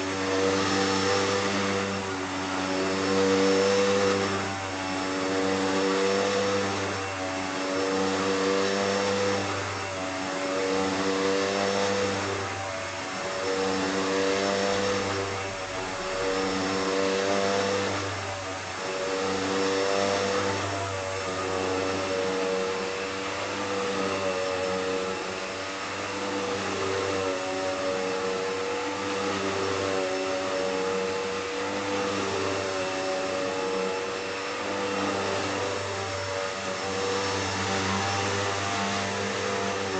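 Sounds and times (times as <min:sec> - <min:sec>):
vacuum cleaner motor hum: 0:00.0 - 0:39.9.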